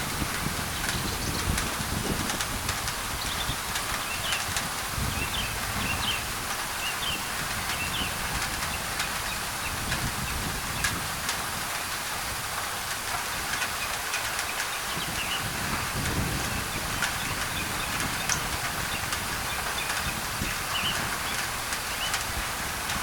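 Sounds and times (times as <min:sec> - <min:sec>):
rain on a tin roof: 0:00.0 - 0:23.0
birds chirping: 0:00.7 - 0:01.6, 0:17.2 - 0:22.2.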